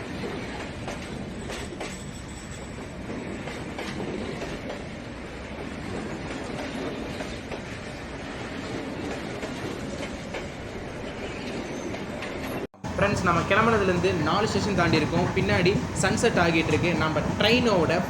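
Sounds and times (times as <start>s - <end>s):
train coach rumble: 0.0s - 18.0s
wheels clattering over rails: 5.6s - 18.0s.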